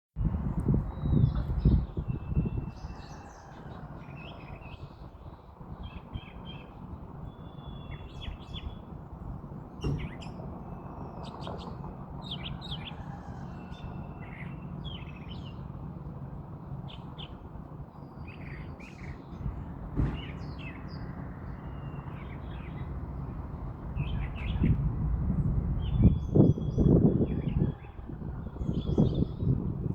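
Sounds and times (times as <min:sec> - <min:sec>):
wind rumble on microphone: 0:00.2 - 0:29.9
birds chirping and calling: 0:01.2 - 0:09.0, 0:09.7 - 0:15.8, 0:16.8 - 0:23.4, 0:24.0 - 0:24.8.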